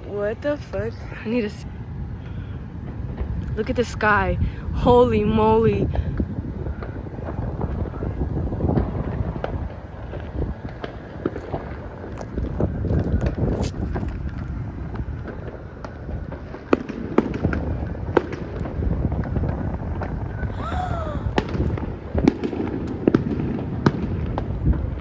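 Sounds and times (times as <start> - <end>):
fireworks banging and cracking: 6.2 - 20.8.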